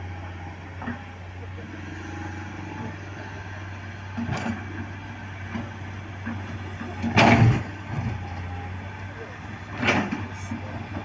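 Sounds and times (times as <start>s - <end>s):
heavy vehicle engine humming: 0.0s - 11.0s.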